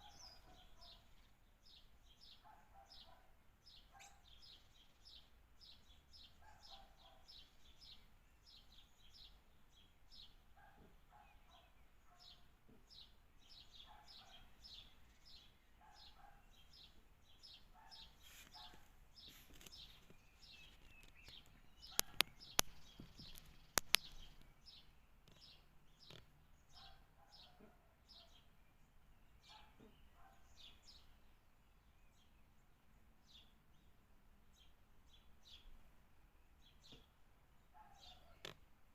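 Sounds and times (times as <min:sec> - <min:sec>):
small birds chirping: 0:00.0 - 0:38.9
sharp clicks: 0:20.9 - 0:24.5.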